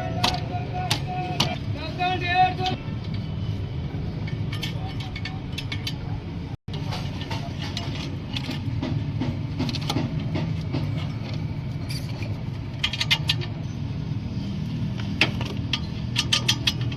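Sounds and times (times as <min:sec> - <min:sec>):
metallic clicks and rattles: 0:04.2 - 0:06.2, 0:09.6 - 0:13.6, 0:15.0 - 0:16.9.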